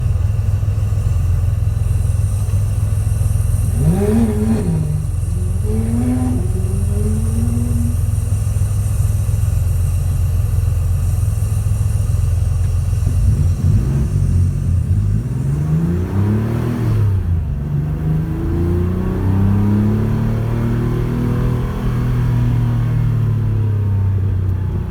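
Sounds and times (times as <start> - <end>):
rally car engine revving: 3.5 - 9.2, 13.0 - 24.9.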